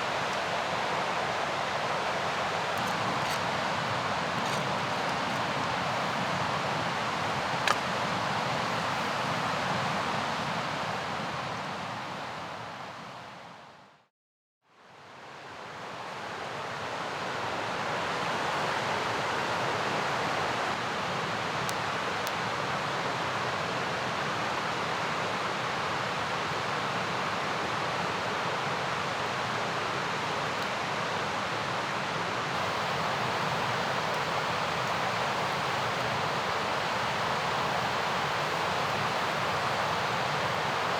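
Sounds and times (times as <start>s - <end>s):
river rushing: 0.0s - 11.2s, 24.7s - 40.9s.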